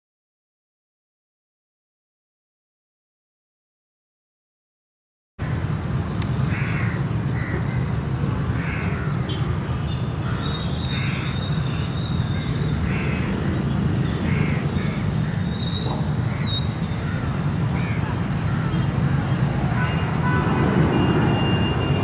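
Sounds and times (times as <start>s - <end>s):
crows cawing: 6.5s - 7.6s, 8.6s - 9.2s, 12.9s - 13.3s, 14.3s - 15.1s, 17.0s - 20.8s.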